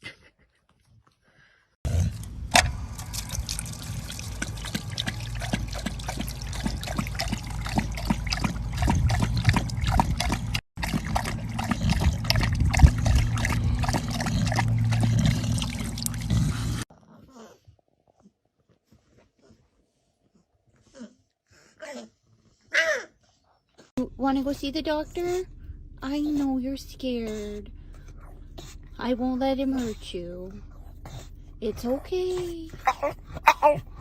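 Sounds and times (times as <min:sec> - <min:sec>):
steady low hum: 0:01.9 - 0:16.9, 0:24.0 - 0:34.0
water trickling and splashing: 0:02.2 - 0:16.8.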